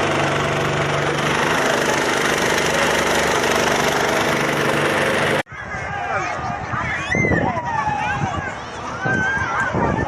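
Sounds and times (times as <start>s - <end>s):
boat engine droning: 0.0s - 5.4s.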